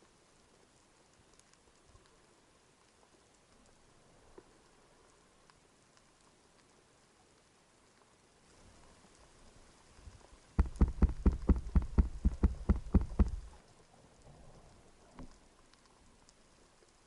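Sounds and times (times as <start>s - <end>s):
sharp knocks underwater: 10.6s - 13.6s.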